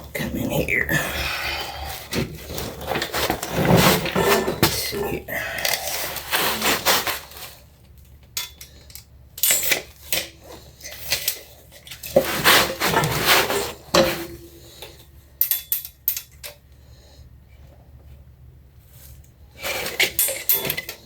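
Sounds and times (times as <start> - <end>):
metal parts clanking: 19.7 - 21.0.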